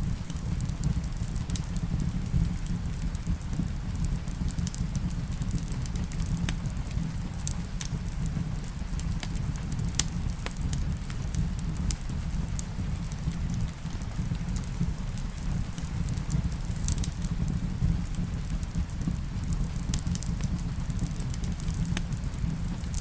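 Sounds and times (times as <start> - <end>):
fireplace crackling and popping: 0.0 - 23.0
steady rain hiss: 0.0 - 23.0.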